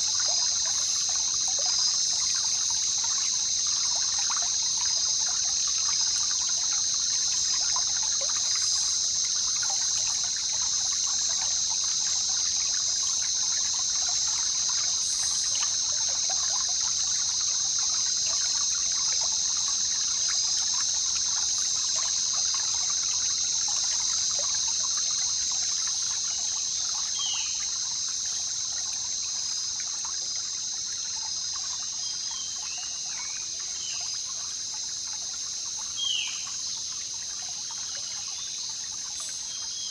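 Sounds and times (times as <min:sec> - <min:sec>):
high-pitched insect drone: 0:00.0 - 0:34.8
river water babbling: 0:00.0 - 0:39.9.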